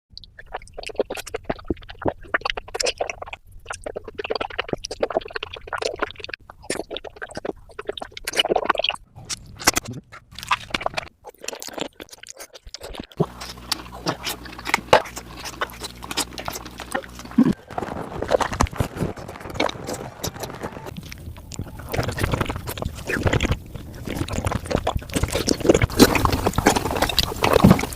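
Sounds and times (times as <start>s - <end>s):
wet slurps and chewing: 0.2s - 27.9s
low steady hum: 13.2s - 27.9s.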